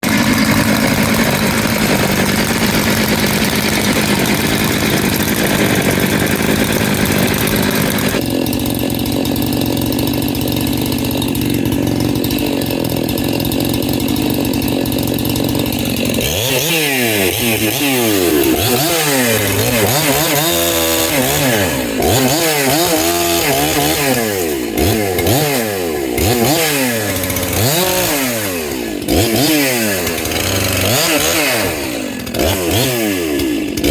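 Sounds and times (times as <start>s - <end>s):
chainsaw engine revving: 0.0s - 33.9s.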